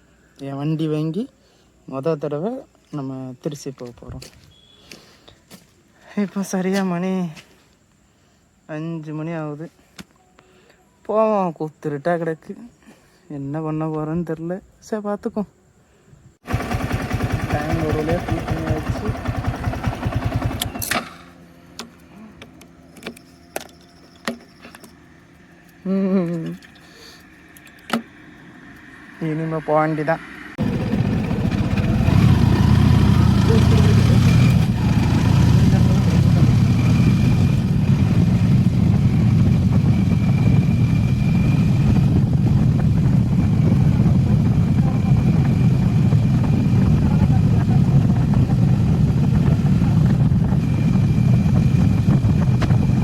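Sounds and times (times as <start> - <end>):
motorcycle engine idling: 16.4 - 25.9, 30.4 - 53.0.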